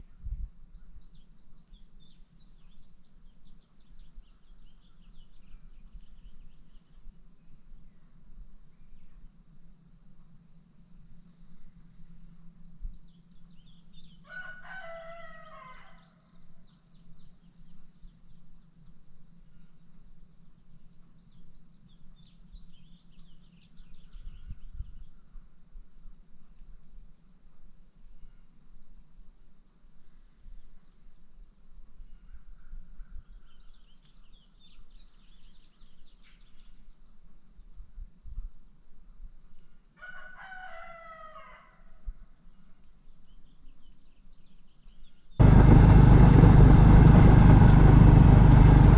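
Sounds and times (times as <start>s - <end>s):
insects chorus: 0.0s - 48.9s
rooster crowing: 14.2s - 16.2s, 40.0s - 41.9s.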